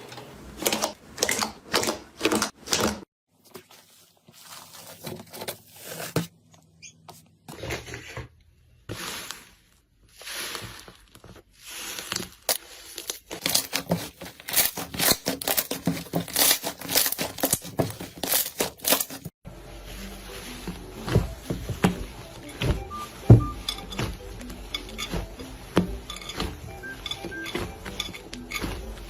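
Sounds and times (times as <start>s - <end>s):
slime squishing and tearing: 9.0s - 19.3s.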